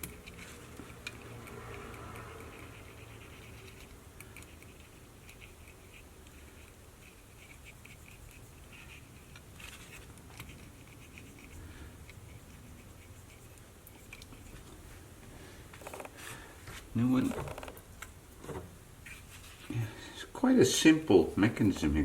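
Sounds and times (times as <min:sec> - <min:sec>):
cotton swab scratching: 0:00.0 - 0:14.8.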